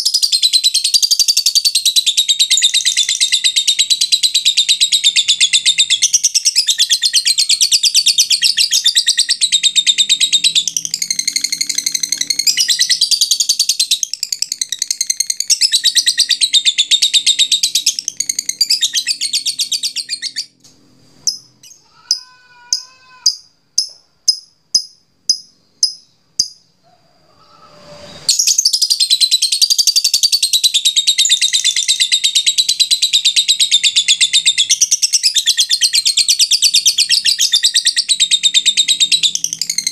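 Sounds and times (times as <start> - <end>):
lovebird chattering trill: 0.0 - 20.5, 21.2 - 26.7
sharp bird chirps: 21.2 - 26.8, 28.0 - 39.9.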